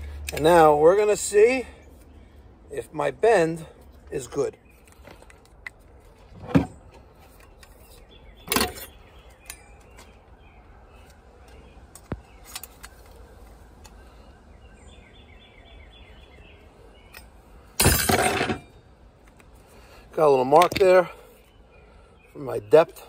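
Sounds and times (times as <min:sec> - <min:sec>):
handling knocks and bumps: 0:17.8 - 0:18.7.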